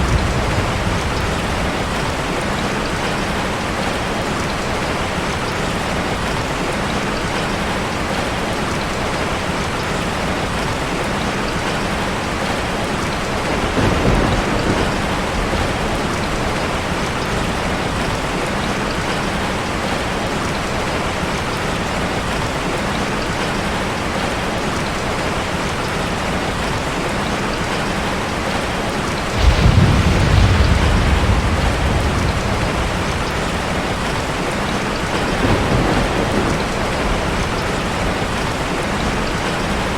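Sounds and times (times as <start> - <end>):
deep rumble: 0.0 - 2.4, 29.3 - 36.5
rushing water: 0.0 - 39.9
low rumble: 29.4 - 34.8.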